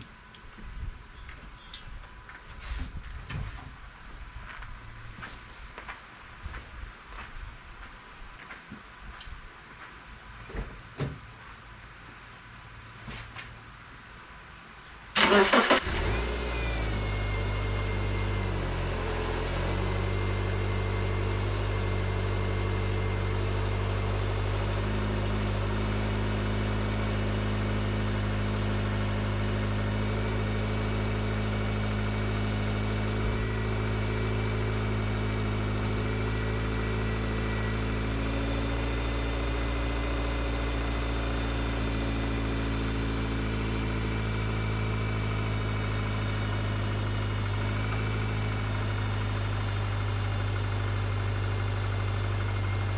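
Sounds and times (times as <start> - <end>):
car engine starting and idling: 14.4 - 52.9.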